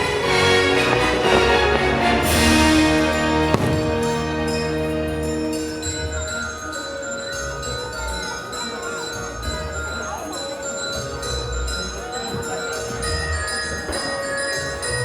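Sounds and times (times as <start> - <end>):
fireworks bursting: 0.0 - 7.5
music with jingle bells and chimes: 0.0 - 15.0.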